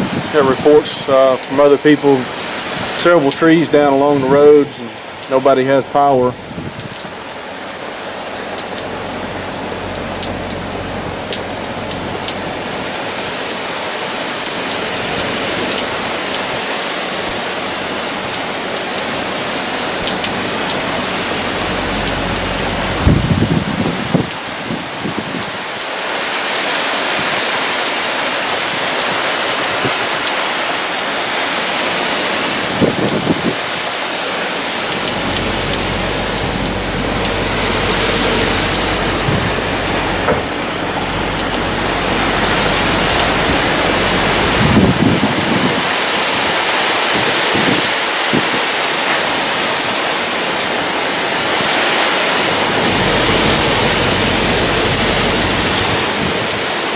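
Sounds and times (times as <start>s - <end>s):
heavy rain pouring: 0.0s - 56.9s
storm wind: 0.0s - 56.9s
low rumbles: 4.9s - 16.3s, 17.6s - 25.0s, 32.5s - 46.0s, 52.3s - 56.7s.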